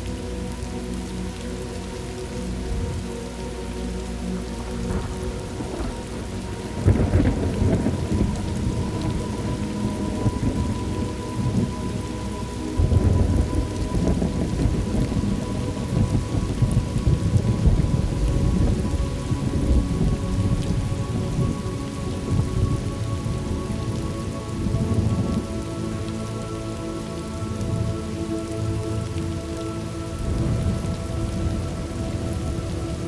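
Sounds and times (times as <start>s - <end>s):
heavy rain: 0.0s - 33.0s
low rolling thunder: 4.8s - 12.0s, 12.8s - 21.6s, 30.2s - 32.8s.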